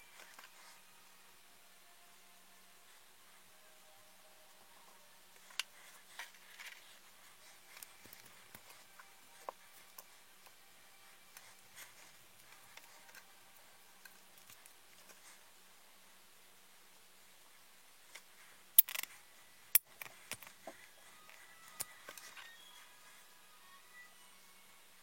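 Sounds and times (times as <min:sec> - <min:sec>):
small parts clicking and tapping: 0:18.1 - 0:20.7, 0:21.3 - 0:22.5.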